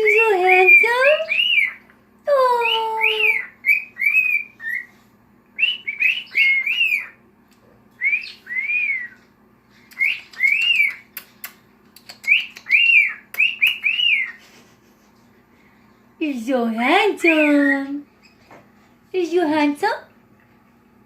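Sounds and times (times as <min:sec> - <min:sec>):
cockatiel whistling: 0:03.2 - 0:04.9, 0:05.6 - 0:07.2, 0:08.0 - 0:09.2, 0:09.9 - 0:11.1, 0:12.2 - 0:14.4
sharp clicks: 0:09.9 - 0:13.9.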